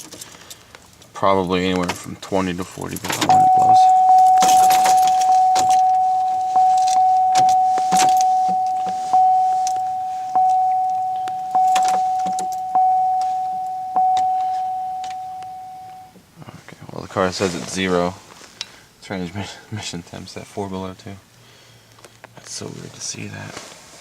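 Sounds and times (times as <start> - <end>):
car warning chime dinging: 3.2 - 16.2
keys jangling: 4.1 - 15.9.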